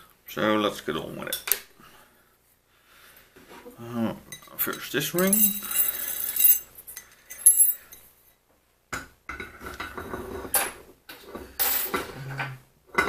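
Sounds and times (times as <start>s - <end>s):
steel parts clinking and scraping: 4.3s - 8.0s.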